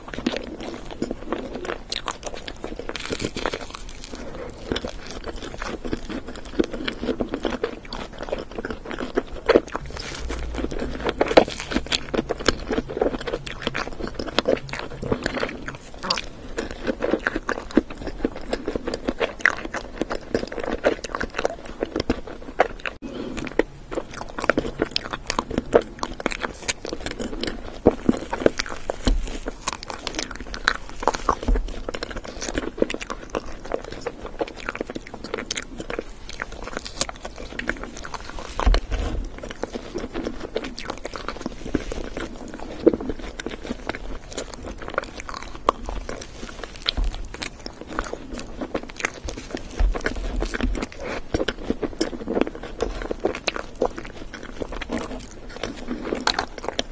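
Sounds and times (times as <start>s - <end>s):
close-miked chewing: 0.0s - 56.9s
low thuds: 9.7s - 15.4s, 38.3s - 39.6s.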